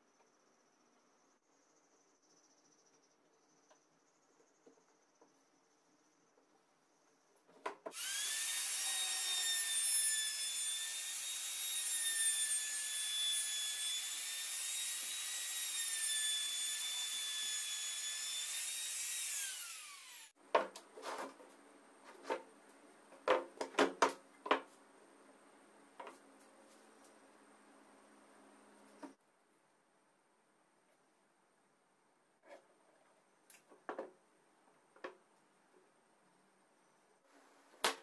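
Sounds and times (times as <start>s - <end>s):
table saw whining: 7.9s - 20.3s.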